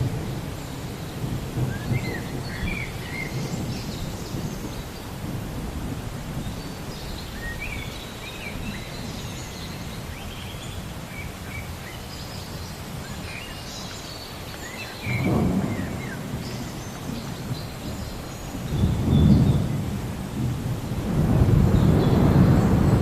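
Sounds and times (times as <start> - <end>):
rain hissing: 0.0 - 23.0
birds chirping: 0.2 - 5.3, 6.3 - 20.0
thunder rolling: 15.1 - 23.0.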